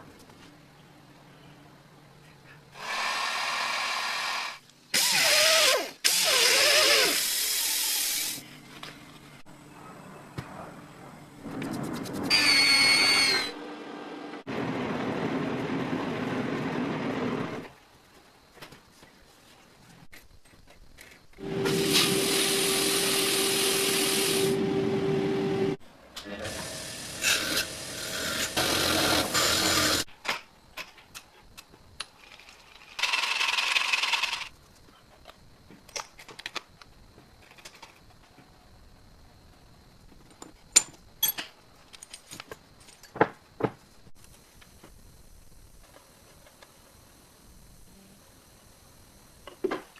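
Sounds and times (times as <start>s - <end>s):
electric power tool running: 21.4s - 25.8s, 26.4s - 30.0s.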